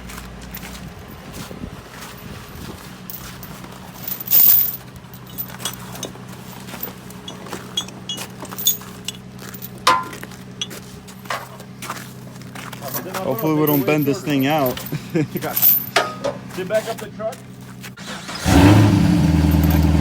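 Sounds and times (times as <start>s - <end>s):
vehicle engine idling: 0.0s - 20.0s
metallic clinks and knocks: 3.1s - 11.6s, 12.7s - 16.5s, 19.4s - 20.0s.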